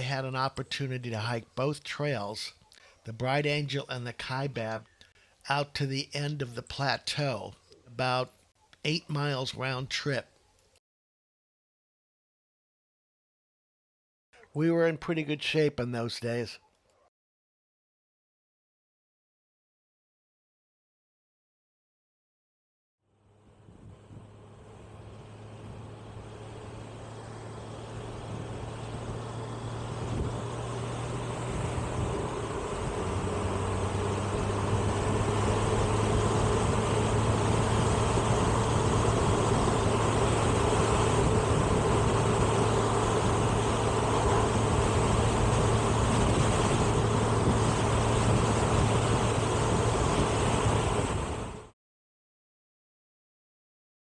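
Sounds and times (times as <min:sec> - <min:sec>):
road and wind noise: 0:23.2 - 0:51.7
vehicle engine running: 0:23.2 - 0:51.7.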